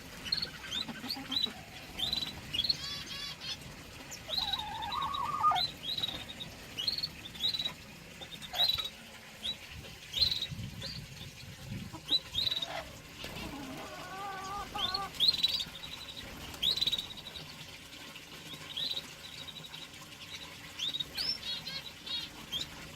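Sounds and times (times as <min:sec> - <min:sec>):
cage birds chirping with trills: 0:00.0 - 0:22.9.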